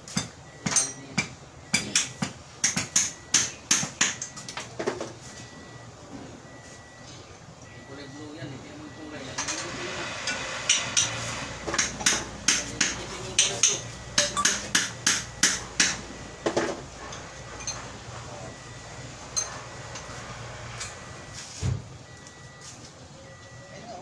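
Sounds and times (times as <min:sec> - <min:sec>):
metal tools striking metal: 0:00.1 - 0:04.4, 0:10.2 - 0:16.0, 0:17.1 - 0:18.0.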